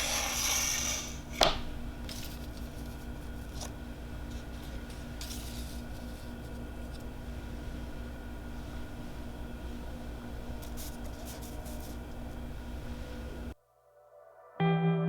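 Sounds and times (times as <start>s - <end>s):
faint steady hum: 0.0s - 13.6s
rustling scrape: 2.1s - 7.7s, 10.6s - 12.3s.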